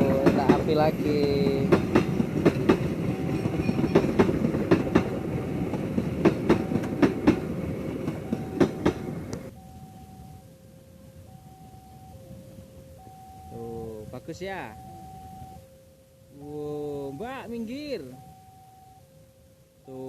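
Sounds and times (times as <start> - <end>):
train wheels clicking over rails: 0.0 - 9.6
train rumble: 0.0 - 15.6
two-note warning signal: 9.5 - 10.6, 11.2 - 20.0.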